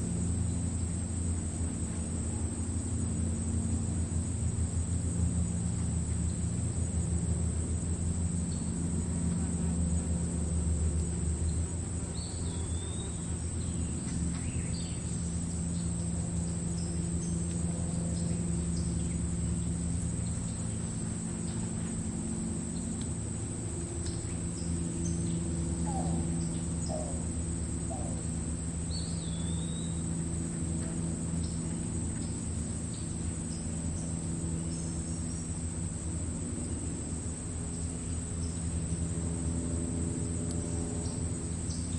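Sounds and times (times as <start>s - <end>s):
crickets trilling: 0.0s - 41.9s.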